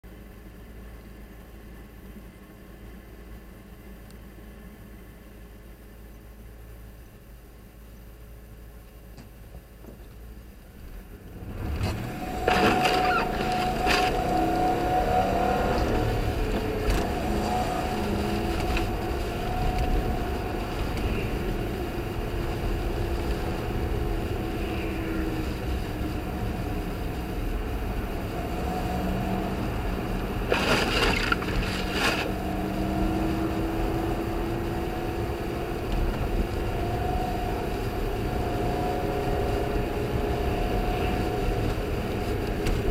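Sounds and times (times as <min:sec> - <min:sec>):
car engine accelerating: 0:10.8 - 0:42.9
tyre noise: 0:30.4 - 0:32.3.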